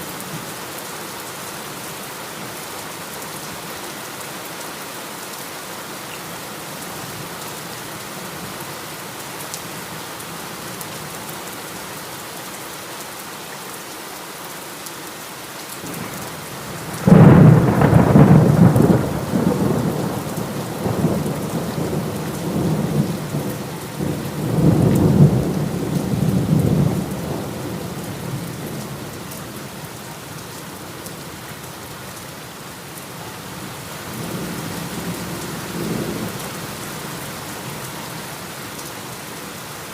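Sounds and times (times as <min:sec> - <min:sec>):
heavy rain: 0:00.0 - 0:39.9
thunder rumbling: 0:16.8 - 0:29.0.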